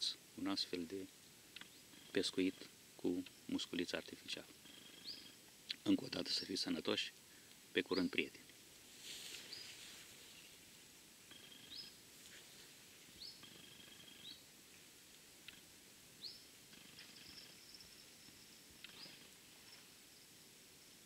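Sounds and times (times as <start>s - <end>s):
low outdoor hush: 0.0s - 21.0s
faint bird calls: 1.5s - 3.6s, 4.2s - 6.6s, 9.1s - 10.6s, 11.2s - 14.5s, 15.4s - 20.4s.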